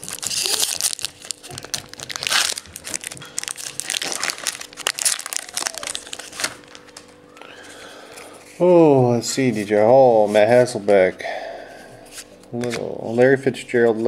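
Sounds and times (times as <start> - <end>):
wrapper crinkling and rustling: 0.0 - 7.8.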